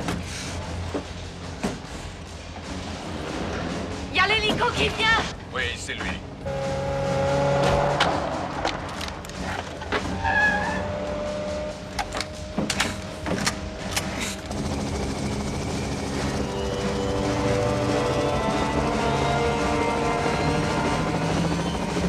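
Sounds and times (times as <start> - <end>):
vehicle engine running: 0.0 - 22.0
sharp bangs and knocks: 5.6 - 22.0.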